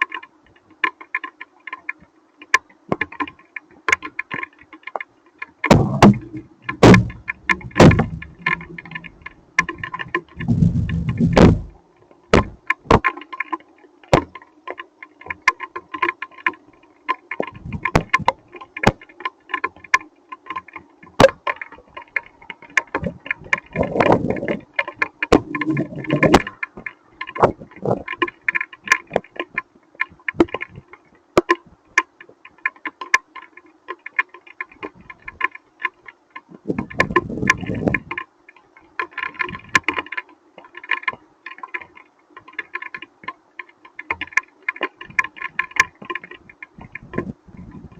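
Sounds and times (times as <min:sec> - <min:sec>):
low rumbles: 0:05.7 - 0:11.8.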